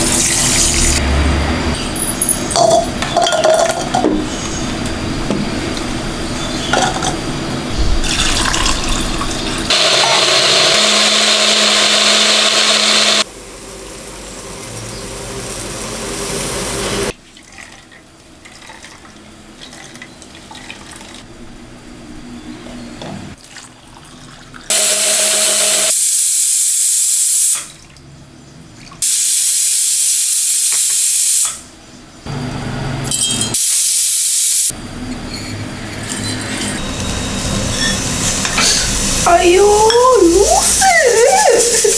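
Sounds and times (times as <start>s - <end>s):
tap water running into sink: 6.7s - 9.7s.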